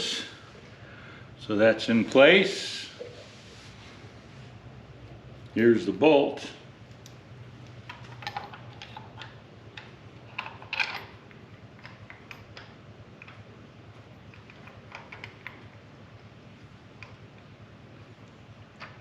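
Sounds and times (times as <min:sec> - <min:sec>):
metallic clicks of bolt handling: 0:07.9 - 0:11.2.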